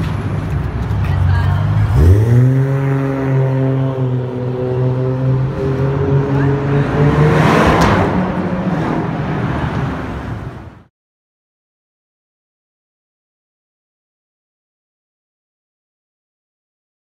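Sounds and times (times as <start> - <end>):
car engine driving off: 0.0 - 10.9
street traffic noise: 0.0 - 10.9.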